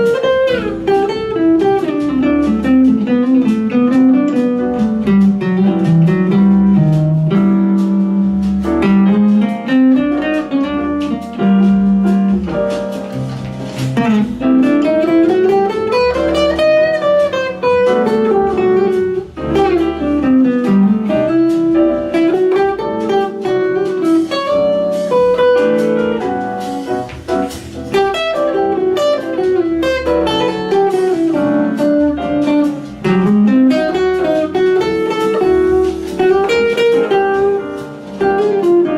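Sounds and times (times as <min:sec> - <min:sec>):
low bass line: 0:00.0 - 0:22.5
guitar melody with sliding pitches: 0:00.0 - 0:38.9.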